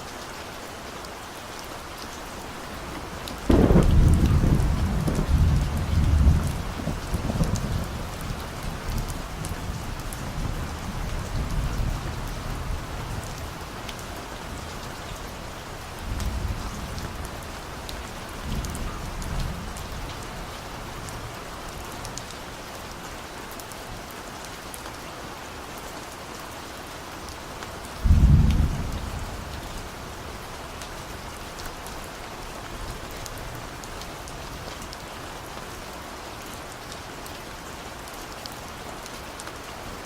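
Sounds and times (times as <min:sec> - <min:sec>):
steady rain: 0:00.0 - 0:40.0
distant thunder rumbling: 0:02.6 - 0:13.3, 0:28.0 - 0:30.4.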